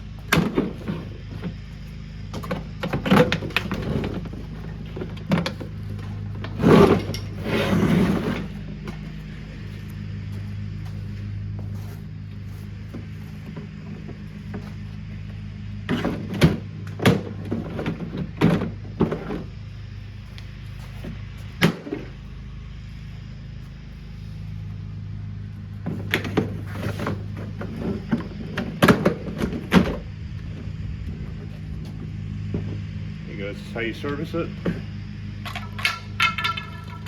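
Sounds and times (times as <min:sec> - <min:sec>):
steady low hum: 0:00.0 - 0:37.0
plastic parts knocking: 0:35.5 - 0:37.0.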